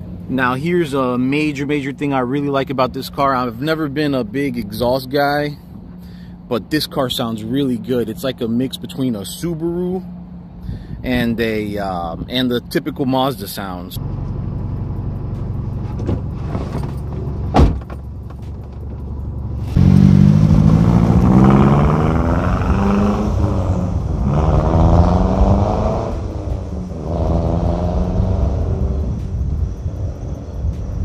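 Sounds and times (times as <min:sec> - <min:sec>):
car engine accelerating: 0:14.0 - 0:31.0.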